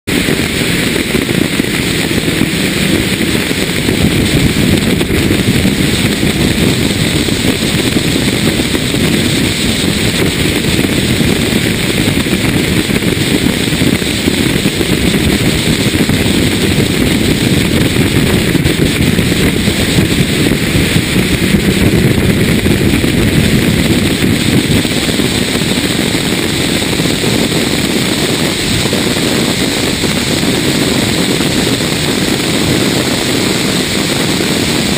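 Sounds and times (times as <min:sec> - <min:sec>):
car engine running hard: 0:00.0 - 0:34.9
wind and road rush: 0:00.0 - 0:34.9.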